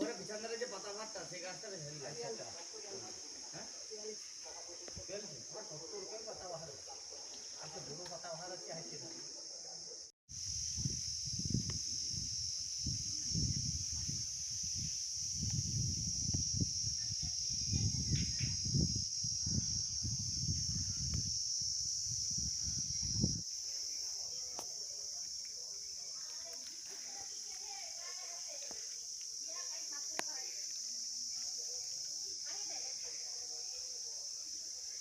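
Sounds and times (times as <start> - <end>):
crickets chirring: 0.0 - 35.0.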